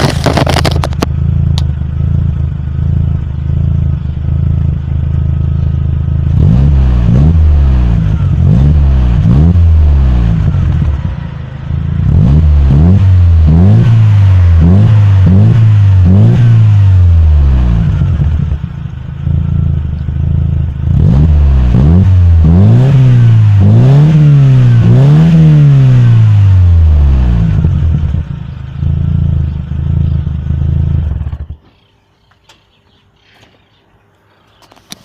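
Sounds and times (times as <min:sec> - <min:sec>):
racing engine revving: 0:06.2 - 0:18.6, 0:20.8 - 0:28.3.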